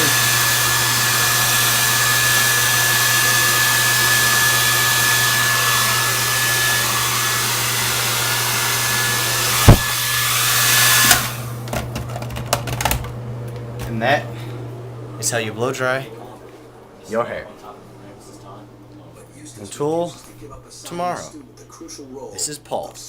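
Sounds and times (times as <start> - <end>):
hair dryer running: 0.0 - 19.0
sharp knock: 9.6 - 9.9.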